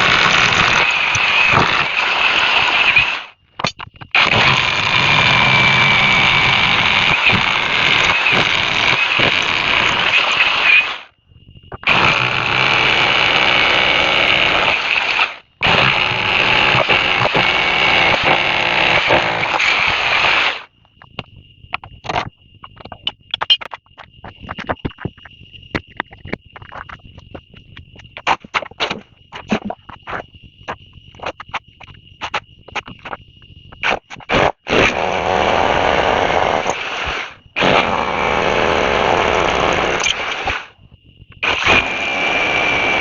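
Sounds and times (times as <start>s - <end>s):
loud machine running: 0.0s - 3.3s, 4.2s - 11.1s, 11.8s - 20.7s, 34.7s - 40.7s, 41.4s - 43.0s
clicks and taps: 3.6s - 4.2s, 20.8s - 33.2s.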